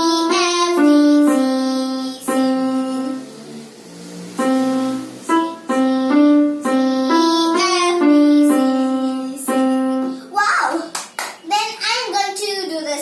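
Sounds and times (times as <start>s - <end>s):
slow piano melody on keyboard: 0.0s - 10.2s.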